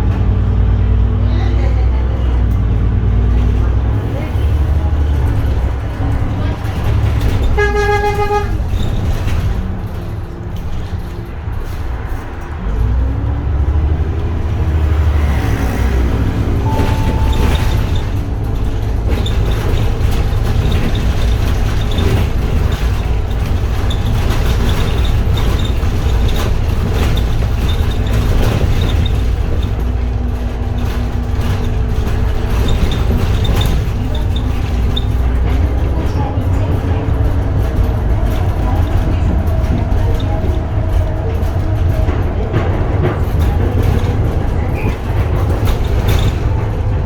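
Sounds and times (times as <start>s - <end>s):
bus engine low rumble: 0.0s - 47.0s
road noise: 0.0s - 47.0s
short steady beep: 16.7s - 17.8s.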